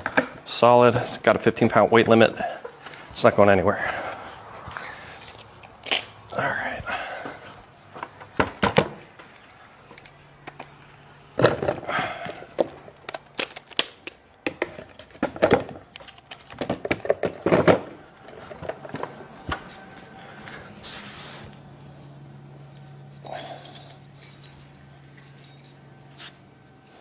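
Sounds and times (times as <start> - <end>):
tools knocking and clattering: 11.4 - 17.9.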